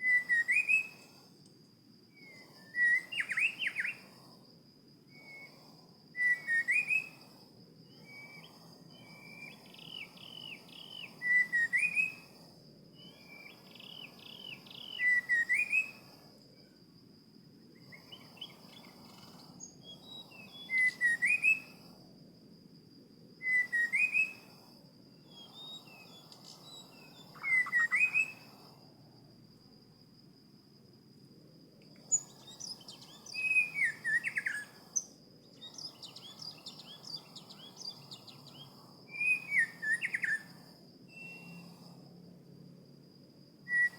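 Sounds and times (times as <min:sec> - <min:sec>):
songbird whistled calls: 0:00.0 - 0:01.2, 0:02.1 - 0:04.1, 0:06.2 - 0:07.3, 0:07.9 - 0:12.4, 0:13.0 - 0:16.1, 0:17.8 - 0:21.8, 0:23.4 - 0:24.6, 0:25.3 - 0:28.6, 0:32.0 - 0:41.7, 0:43.7 - 0:43.9.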